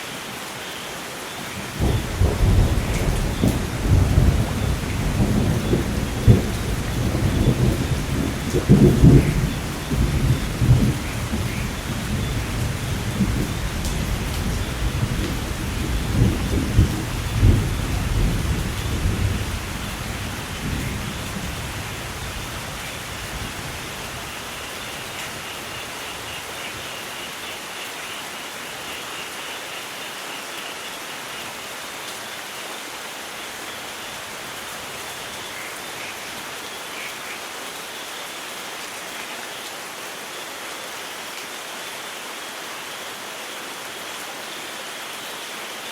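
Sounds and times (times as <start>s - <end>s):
heavy rain: 0.0s - 45.9s
rumble of thunder: 1.8s - 24.2s.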